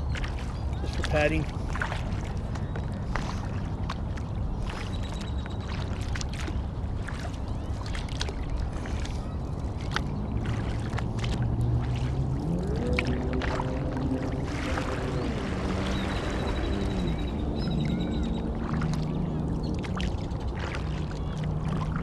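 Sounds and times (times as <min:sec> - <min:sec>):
water splashing against kayak hull: 0:00.0 - 0:22.0
paddle drips and knocks: 0:00.1 - 0:17.0, 0:18.6 - 0:22.0
steady low rumble: 0:01.5 - 0:22.0
low hum rising in pitch: 0:09.2 - 0:22.0.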